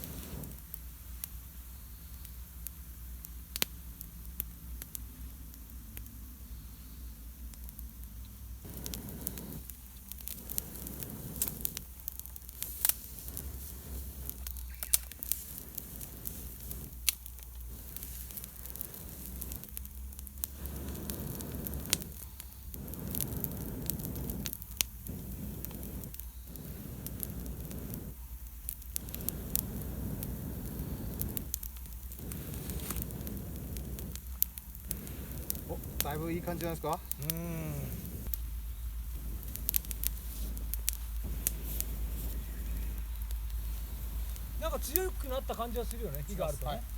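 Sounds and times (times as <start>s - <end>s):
campfire crackling and popping: 0.0s - 46.9s
air blown through pipe: 29.0s - 31.5s, 37.2s - 44.7s.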